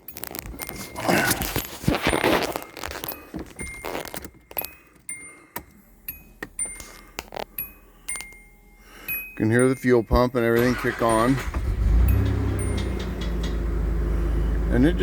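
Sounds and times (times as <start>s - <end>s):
car keys jangling: 0.0s - 8.4s, 9.4s - 13.8s
sharp clicks from dashboard: 10.6s - 13.8s.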